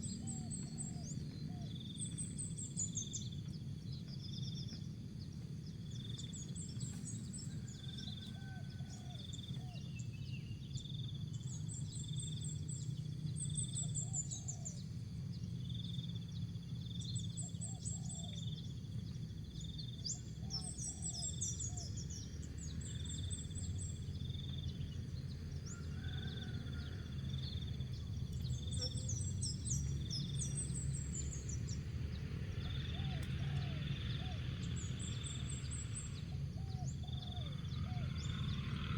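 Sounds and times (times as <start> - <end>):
dove cooing: 32.7 - 34.5.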